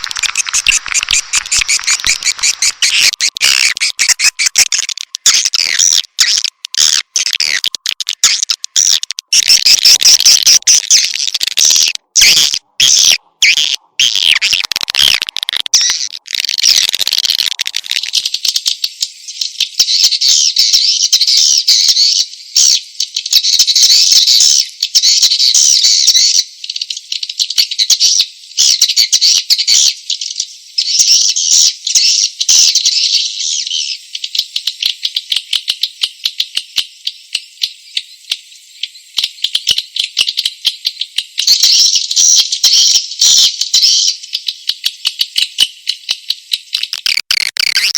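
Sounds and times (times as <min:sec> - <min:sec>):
swiftlets twittering: 0:00.0 - 0:18.4.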